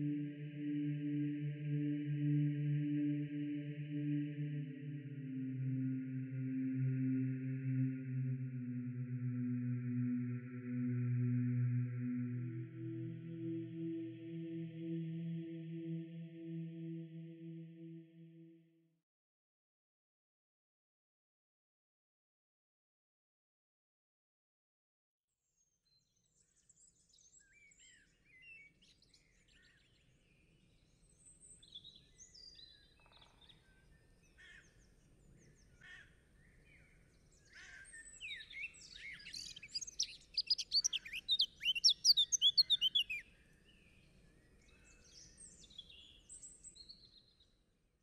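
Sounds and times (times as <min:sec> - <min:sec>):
songbirds chirping: 0:00.0 - 0:18.4, 0:26.3 - 0:47.6.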